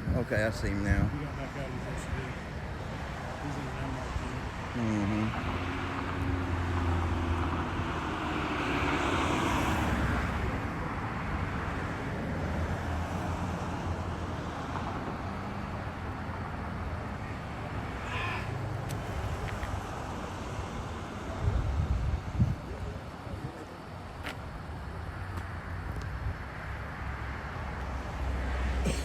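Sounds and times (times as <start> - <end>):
traffic engine hum: 0.0 - 29.0
vehicle passing: 0.5 - 22.7.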